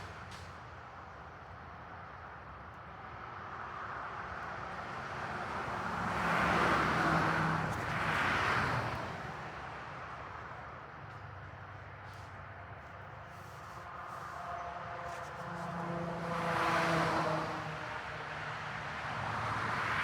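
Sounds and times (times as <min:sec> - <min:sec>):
car passing by: 0:03.5 - 0:10.0, 0:13.4 - 0:20.0.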